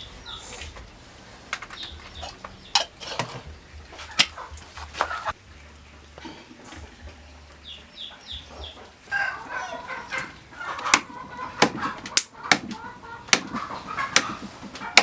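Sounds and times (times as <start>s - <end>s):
chickens clucking: 0.0s - 15.0s
sharp knocks: 10.9s - 15.0s.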